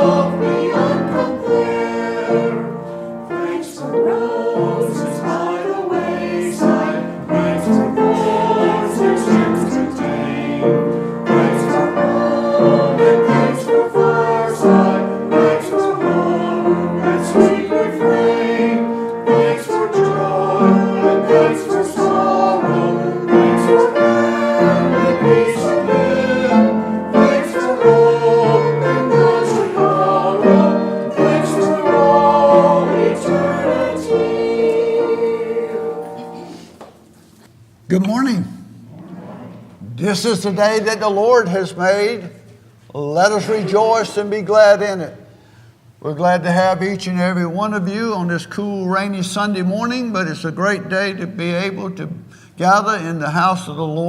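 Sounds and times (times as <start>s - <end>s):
choir singing: 0.0s - 36.9s.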